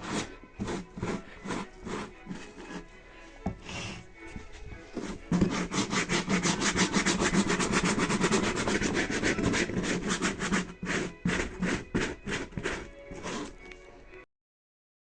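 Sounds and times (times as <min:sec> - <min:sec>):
brush scrubbing foam: 0:00.0 - 0:02.9, 0:04.9 - 0:13.6.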